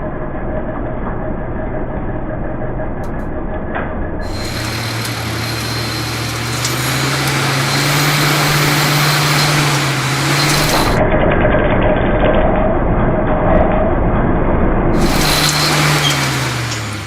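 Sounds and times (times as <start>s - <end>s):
low machine hum: 0.0s - 17.0s
steady whine: 2.3s - 17.0s
machine cutting metal: 4.2s - 11.0s, 15.0s - 17.0s.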